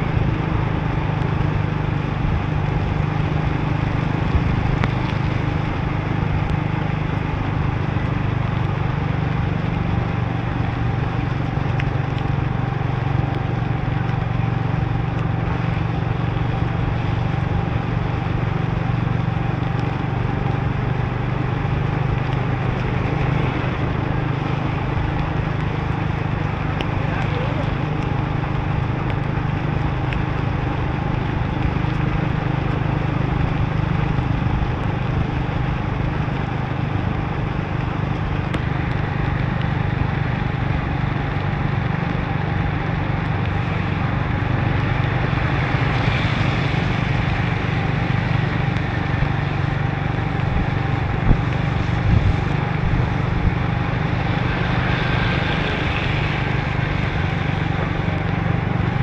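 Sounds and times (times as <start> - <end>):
motorbike engine running: 0.0 - 59.0
rain: 0.0 - 59.0
tyres hissing on wet road: 15.6 - 59.0.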